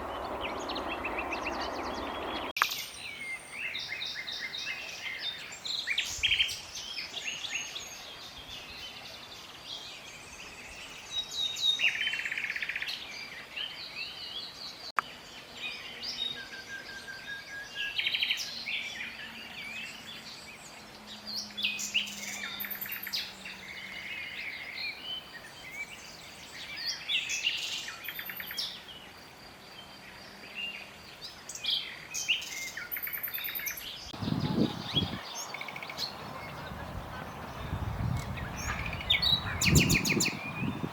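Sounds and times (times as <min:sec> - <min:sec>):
nightingale singing: 0:30.5 - 0:40.9.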